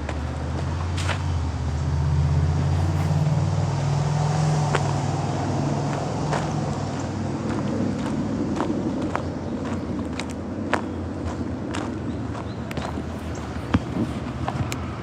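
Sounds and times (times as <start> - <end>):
footsteps on trail: 0.0 - 1.4, 2.6 - 15.0
vehicle engine humming: 0.0 - 15.0.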